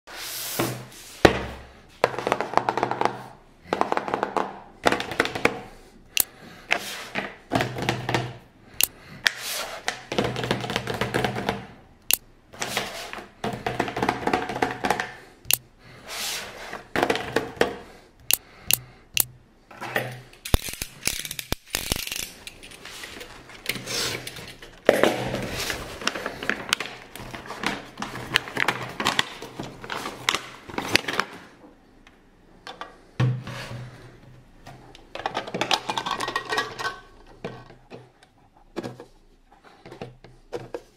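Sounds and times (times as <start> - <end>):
sharp clicks and taps: 18.2 - 19.3
packaging rustling and scraping: 20.6 - 31.5.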